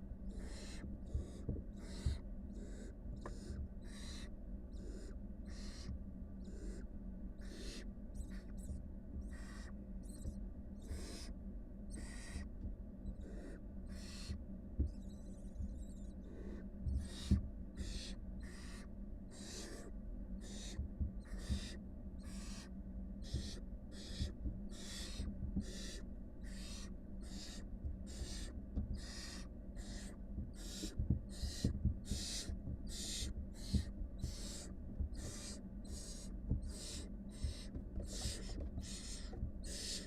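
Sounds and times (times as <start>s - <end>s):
steady low hum: 0.0s - 40.0s
owl nestlings hissing: 0.3s - 6.8s, 7.4s - 8.5s, 9.2s - 11.3s, 11.9s - 12.5s, 13.2s - 14.4s, 15.9s - 40.0s
soft thumps: 36.4s - 39.8s.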